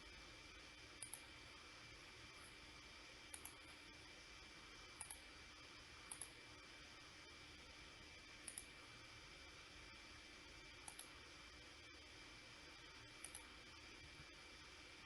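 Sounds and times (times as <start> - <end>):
faint hiss and hum: 0.0 - 15.0
computer mouse double-clicks: 6.1 - 6.4, 8.4 - 8.7, 10.8 - 11.1, 13.2 - 13.5.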